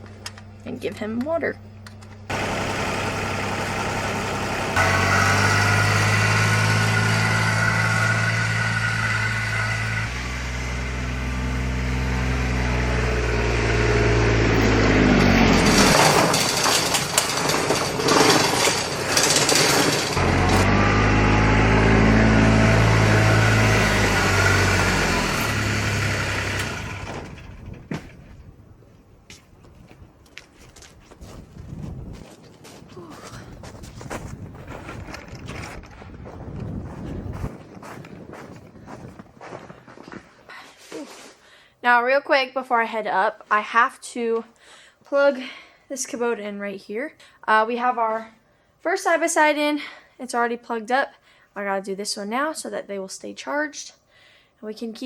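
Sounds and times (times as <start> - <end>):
small vehicle engine running: 1.8 - 28.2
clattering and knocking: 15.0 - 20.7.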